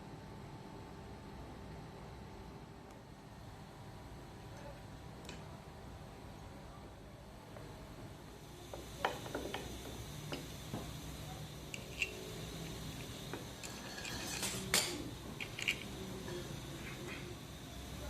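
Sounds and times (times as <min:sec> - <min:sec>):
metal tools clinking: 0:13.6 - 0:15.9
metal scraping on workbench: 0:13.7 - 0:14.9.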